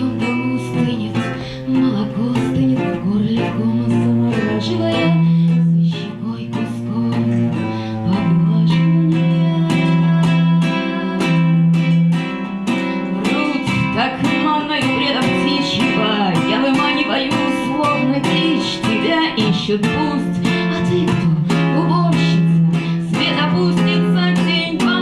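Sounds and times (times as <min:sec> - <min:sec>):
low cello notes: 0:00.0 - 0:19.7
acoustic guitar plucked and strummed: 0:00.0 - 0:25.0.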